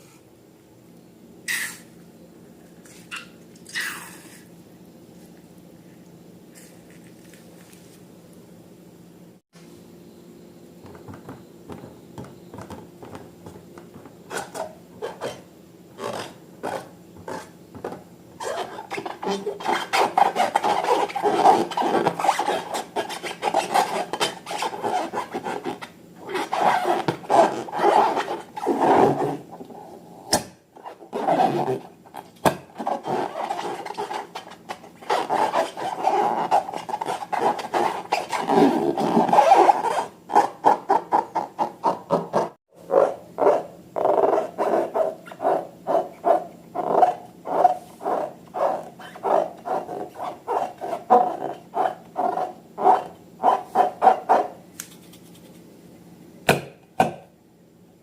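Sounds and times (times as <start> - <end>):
slime rubbing and rasping by hand: 18.4 - 29.5, 30.9 - 42.6.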